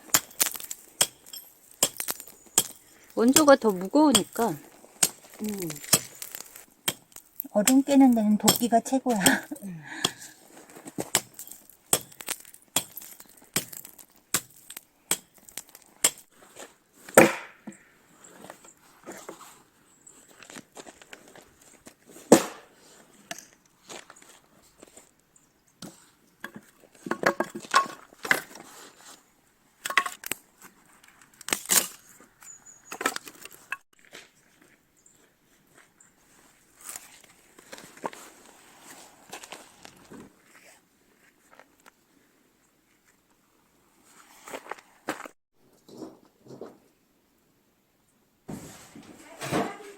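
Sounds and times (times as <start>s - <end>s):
ice cracking and breaking: 5.4s - 7.4s
axe chopping at ice: 17.2s - 17.6s, 22.3s - 22.7s.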